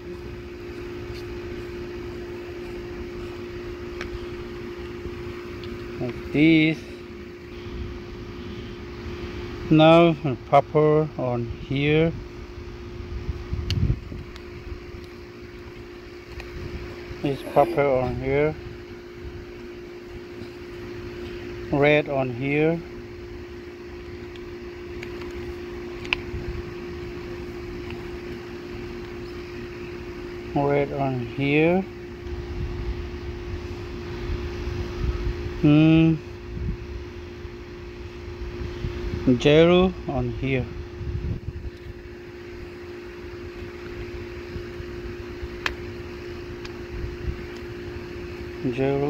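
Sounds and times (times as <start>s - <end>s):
air conditioner hum: 0.0s - 49.0s.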